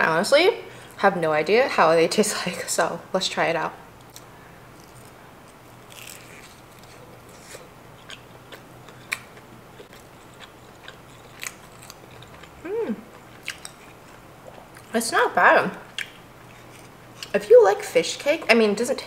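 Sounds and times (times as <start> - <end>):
chewing crispy food: 4.0 - 15.0, 15.8 - 17.4.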